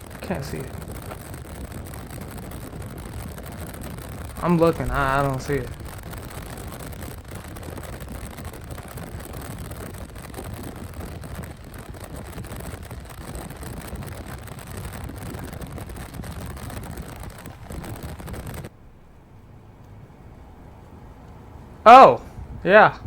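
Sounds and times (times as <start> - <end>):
wind buffeting through car window: 0.0 - 23.0.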